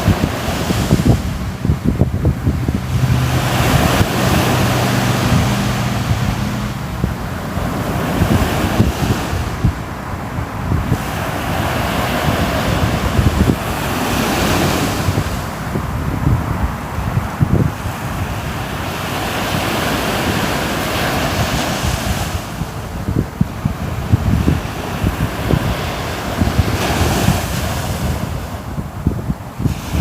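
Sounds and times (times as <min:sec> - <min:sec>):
ocean waves breaking on shore: 0:00.0 - 0:30.0
wind rumbling on microphone: 0:00.0 - 0:30.0.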